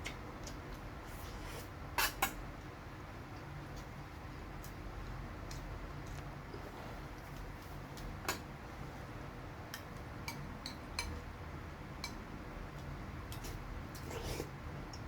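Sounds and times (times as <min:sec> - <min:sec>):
low steady hum: 0:00.0 - 0:15.0
chewing: 0:05.4 - 0:06.4.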